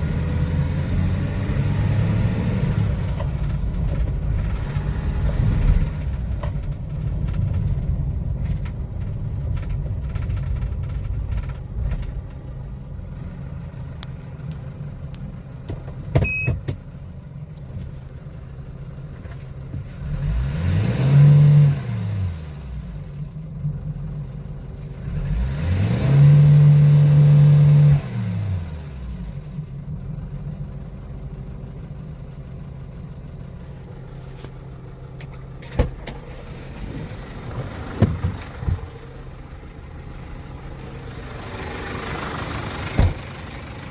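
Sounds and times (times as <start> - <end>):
truck engine revving: 0.0 - 6.7, 20.0 - 22.8, 25.0 - 29.2.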